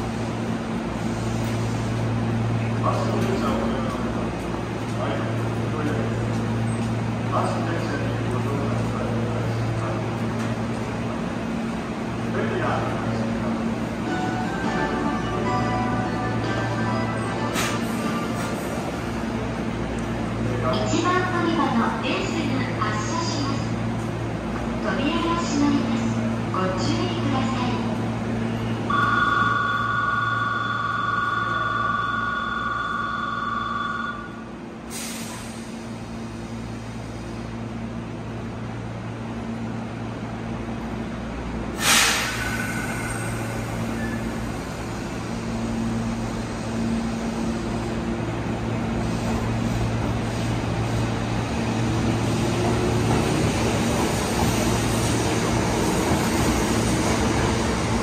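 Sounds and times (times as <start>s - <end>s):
train humming: 0.0s - 58.0s
two-tone electronic signal: 28.9s - 34.4s
air burst: 41.8s - 42.9s.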